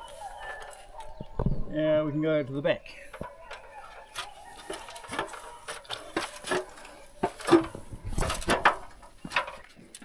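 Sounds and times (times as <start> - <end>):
knocks and rubbing of handled objects: 3.0 - 9.7.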